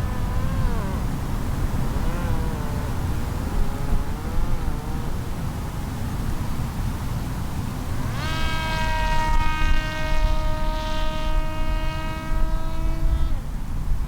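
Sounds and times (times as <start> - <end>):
drone motor and propeller whining: 0.0 - 8.2.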